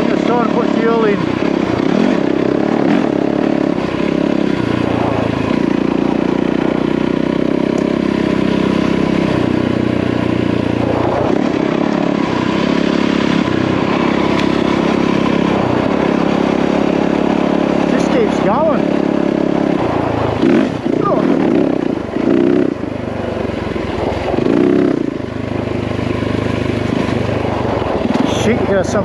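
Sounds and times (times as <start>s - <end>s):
dirt bike engine revving: 0.0s - 29.0s
wind noise: 9.4s - 17.7s, 18.4s - 29.0s.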